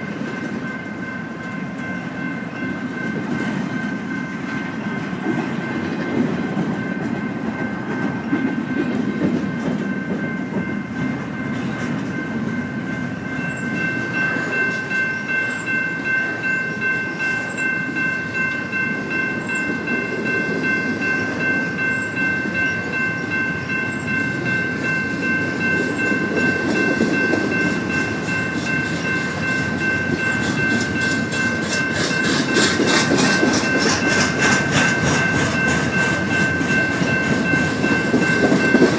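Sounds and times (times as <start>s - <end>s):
freight train rumbling: 0.0s - 38.9s
wheels clacking over rail joints: 21.3s - 38.9s.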